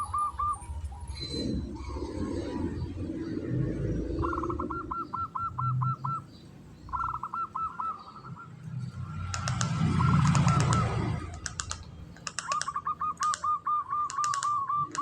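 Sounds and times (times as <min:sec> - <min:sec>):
dove cooing in staccato runs: 0:09.4 - 0:11.7.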